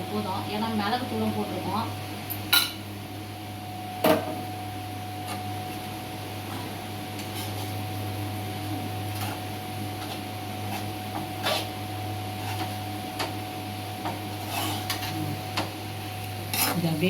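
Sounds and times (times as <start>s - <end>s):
spoon scraping in a pan: 7.2s - 7.8s, 9.1s - 13.3s, 14.0s - 15.7s, 16.4s - 17.0s.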